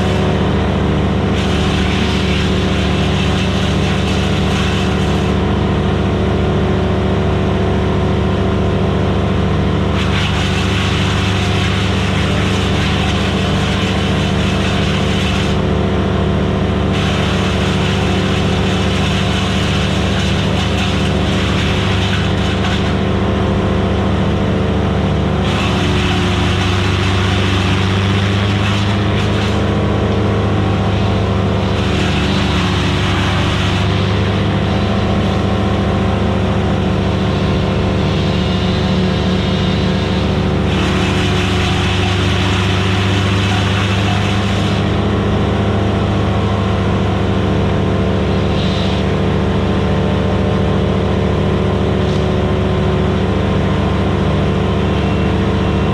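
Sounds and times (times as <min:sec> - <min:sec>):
wood being chipped: 0:00.0 - 0:05.5, 0:09.9 - 0:15.8, 0:16.7 - 0:23.1, 0:25.4 - 0:30.2, 0:31.6 - 0:35.4, 0:38.2 - 0:45.0
wood chipper engine droning: 0:00.0 - 0:55.9.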